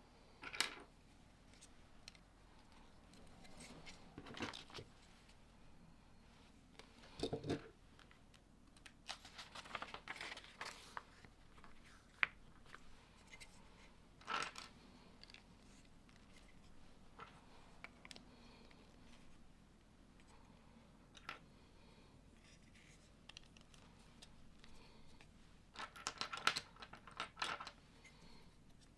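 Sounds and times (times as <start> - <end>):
plastic pieces clicking: 25.8 - 27.8.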